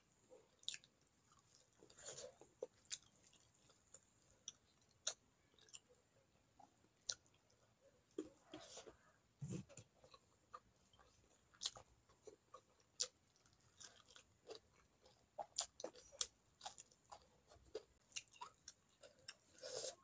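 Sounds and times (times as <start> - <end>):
person chewing food: 0.3 - 20.0.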